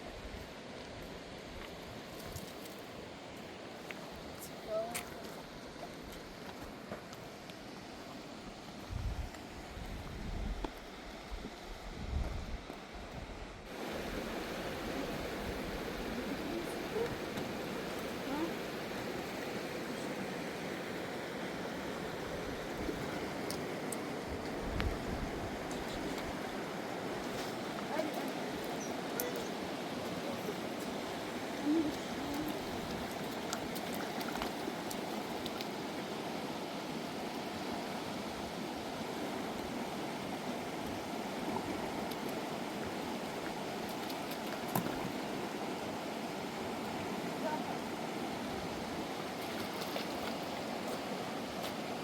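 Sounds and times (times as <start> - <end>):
river rushing: 13.6 - 52.0.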